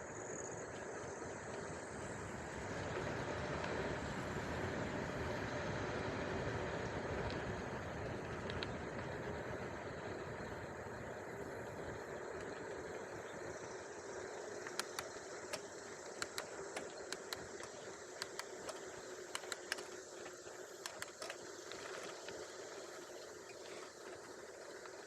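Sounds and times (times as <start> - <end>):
sharp irregular clicks: 13.5 - 25.0.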